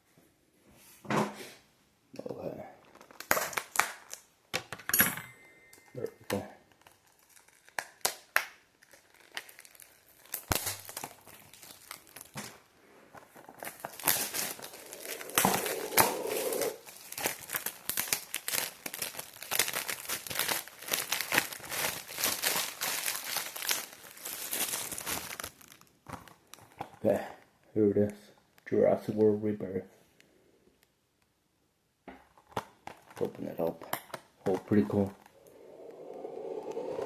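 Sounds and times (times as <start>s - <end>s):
plastic shrink-wrap crinkling: 2.8s - 4.3s, 6.3s - 27.1s, 32.4s - 36.8s.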